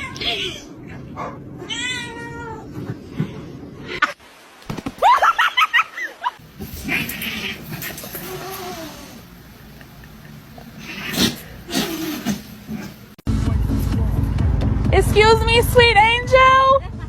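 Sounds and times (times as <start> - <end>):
pet animal high cries: 6.7 - 9.2.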